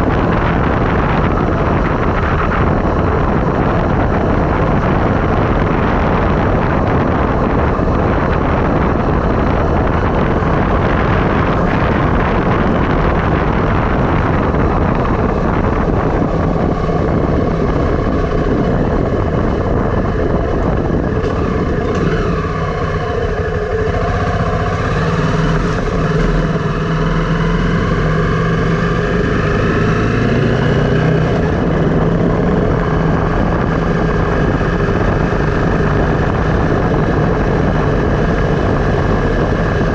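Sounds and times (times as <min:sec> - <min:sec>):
engine hum: 0:00.0 - 0:39.9
wind and road noise: 0:00.0 - 0:39.9.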